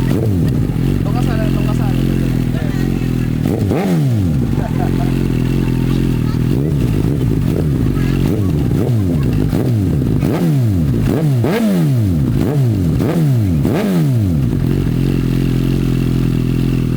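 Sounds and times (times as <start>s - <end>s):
motorcycle engine idling: 0.0s - 16.9s
motorcycle engine revving: 0.0s - 16.9s.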